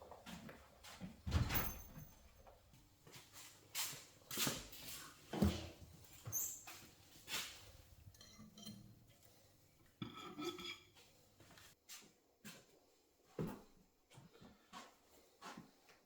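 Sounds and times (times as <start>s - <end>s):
hand tools knocking and scraping: 5.4s - 9.0s.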